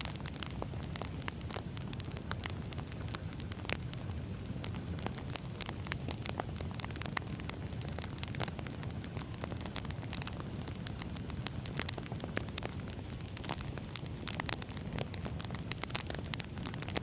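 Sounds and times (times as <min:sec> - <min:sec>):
firewood popping and crackling: 0:00.0 - 0:17.0
low rumble of flames: 0:00.0 - 0:17.0.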